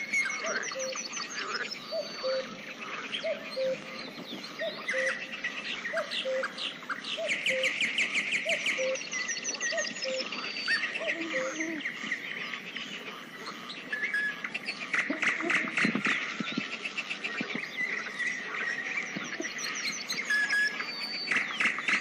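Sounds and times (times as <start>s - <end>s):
birds singing and chirping: 0.0s - 22.0s.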